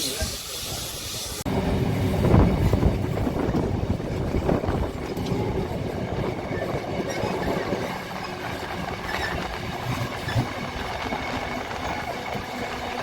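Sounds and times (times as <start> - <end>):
steam hiss: 0.0 - 1.5
steam train running on rails: 0.0 - 13.0.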